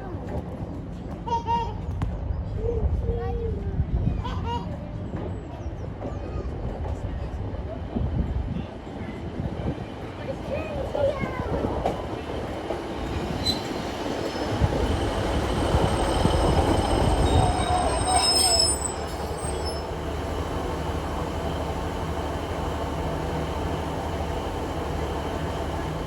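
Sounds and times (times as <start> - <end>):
train rumbling on rails: 0.0 - 26.0
high wheel squeal: 13.4 - 20.0.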